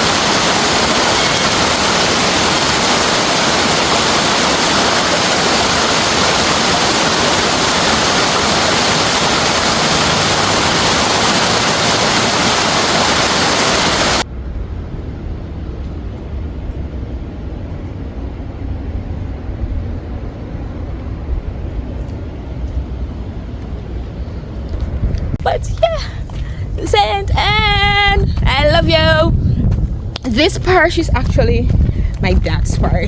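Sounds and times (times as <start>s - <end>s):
moving vehicle rumble: 0.0s - 13.4s, 14.1s - 33.0s
waterfall rushing: 0.0s - 14.2s.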